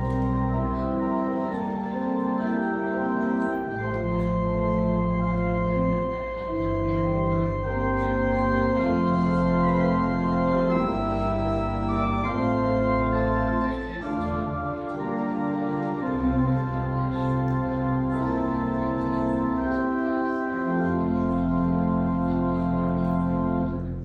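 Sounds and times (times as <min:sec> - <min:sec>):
organ playing slow chords: 0:00.0 - 0:24.0.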